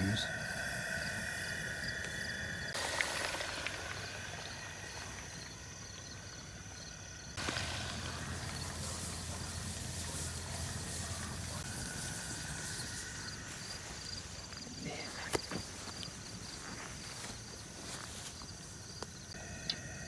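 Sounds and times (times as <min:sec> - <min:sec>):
steady hiss: 0:00.0 - 0:18.6
crickets chirping: 0:00.0 - 0:20.0
low hum: 0:07.4 - 0:14.5.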